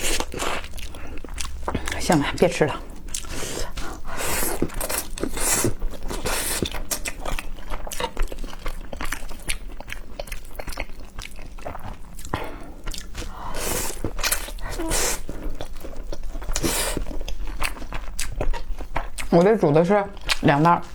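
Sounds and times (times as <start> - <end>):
wet chewing clicks: 0.0 - 20.9
person slurping noodles: 3.2 - 6.8, 12.5 - 15.4, 16.5 - 17.1.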